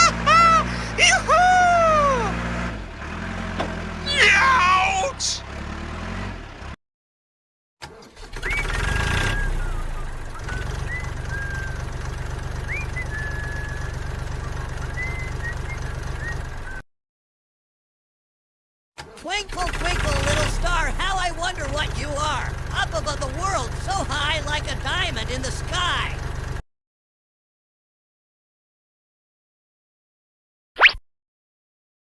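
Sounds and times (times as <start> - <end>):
engine rumble: 0.0 - 6.8, 7.9 - 16.8, 19.0 - 26.6.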